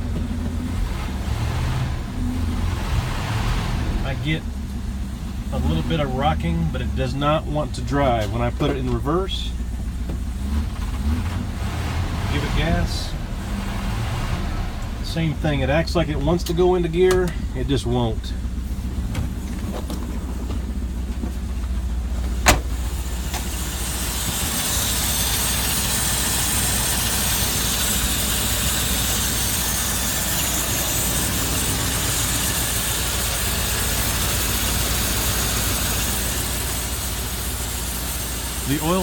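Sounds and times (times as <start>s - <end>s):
engine idling: 0.0s - 39.0s
sharp bang: 22.4s - 23.4s.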